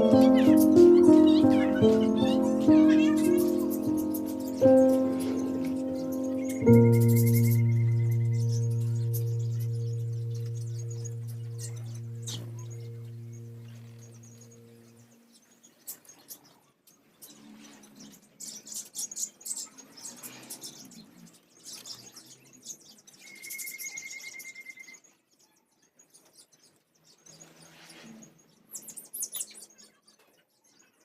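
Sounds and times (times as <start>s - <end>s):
parrot trill: 0.0s - 14.8s
low ringing tone: 4.2s - 15.0s.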